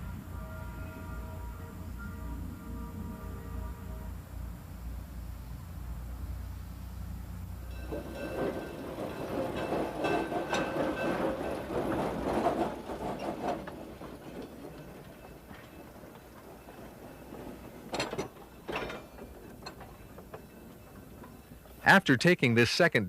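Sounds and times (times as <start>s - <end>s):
train wheels clattering on rails: 7.6s - 22.0s.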